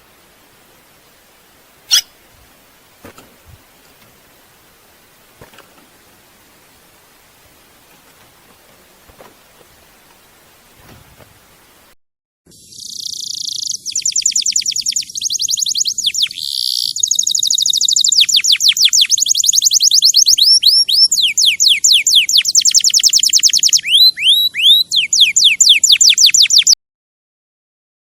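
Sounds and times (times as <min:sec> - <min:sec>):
songbird singing: 0:00.0 - 0:07.3, 0:12.5 - 0:26.8.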